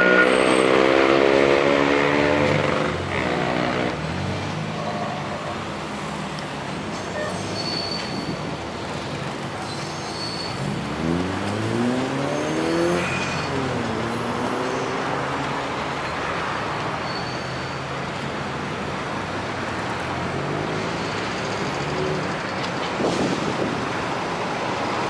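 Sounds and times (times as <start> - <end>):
vehicle engine accelerating: 10.6 - 15.6.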